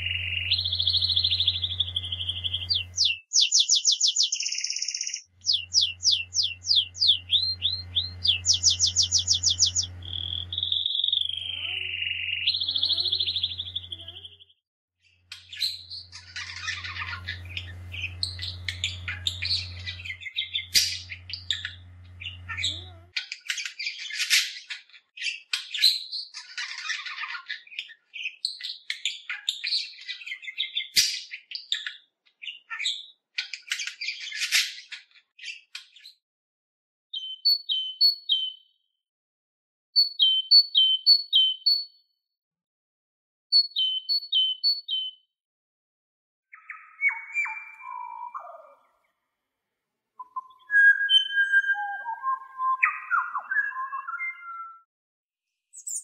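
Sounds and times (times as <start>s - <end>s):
low hum: 0.0s - 3.0s, 5.4s - 10.8s, 15.9s - 22.7s
birds chirping: 0.0s - 14.5s, 15.3s - 28.3s, 46.5s - 49.1s, 50.2s - 54.8s.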